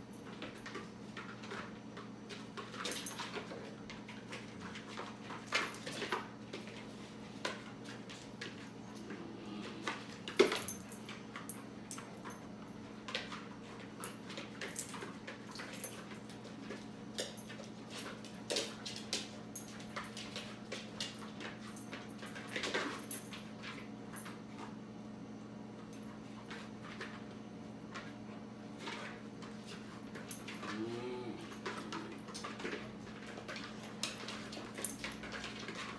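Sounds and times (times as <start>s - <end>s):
dogs moving: 0.2s - 24.8s, 25.8s - 35.9s
dogs making small vocal noises: 8.7s - 10.9s, 30.4s - 33.1s
steady low hum: 8.7s - 12.4s.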